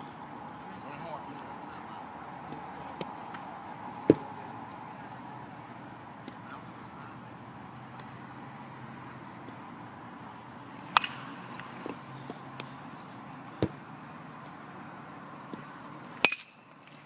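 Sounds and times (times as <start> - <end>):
bat cracking against ball: 10.9 - 12.7, 15.5 - 17.0.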